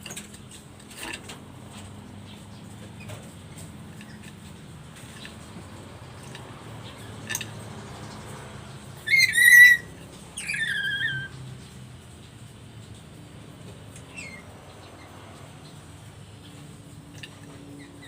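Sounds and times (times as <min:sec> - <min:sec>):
parrot calls: 0:09.0 - 0:11.4.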